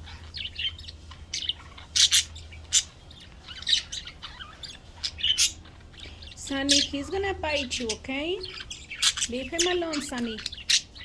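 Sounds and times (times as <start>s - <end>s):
budgerigars chirping and chattering: 0.0s - 11.0s
steady low hum: 0.0s - 11.0s
budgerigar squawks: 1.4s - 5.7s.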